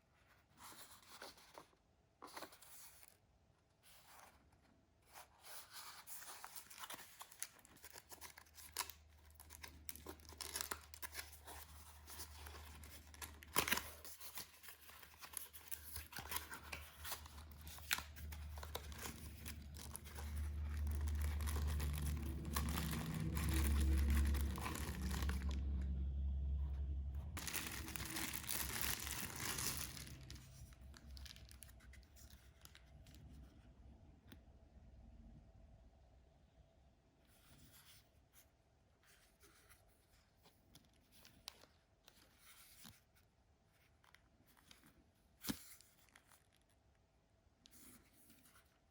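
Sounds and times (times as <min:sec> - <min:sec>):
packaging crinkling and tearing: 0:06.2 - 0:26.0, 0:27.4 - 0:33.2
low hum: 0:16.0 - 0:31.7.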